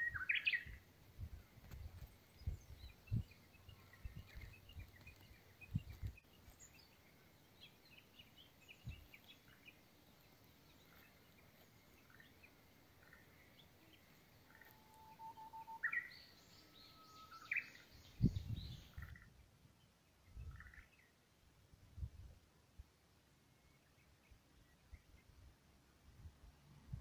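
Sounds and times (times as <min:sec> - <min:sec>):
bird singing whistled notes: 0:00.0 - 0:00.8, 0:11.7 - 0:19.3
small bird chirps: 0:00.0 - 0:00.8, 0:01.6 - 0:21.2.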